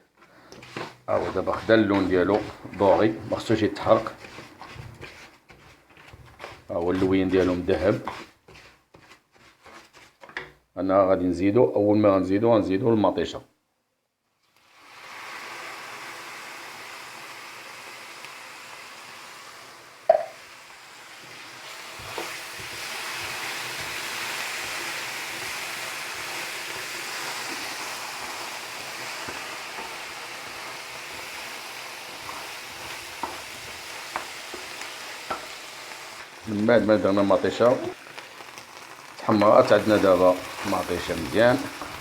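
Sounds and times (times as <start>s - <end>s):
food sizzling in a pan: 0.0s - 10.0s, 14.5s - 42.0s
spoon tapping a pan: 20.1s - 20.4s.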